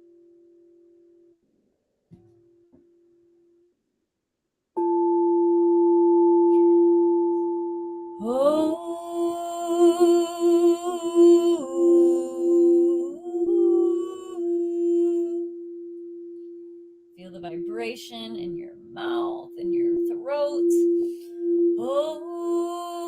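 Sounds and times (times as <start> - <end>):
singing bowl tone: 4.8 - 23.0
woman singing wordless note: 8.2 - 15.7, 17.2 - 20.9, 21.8 - 23.0.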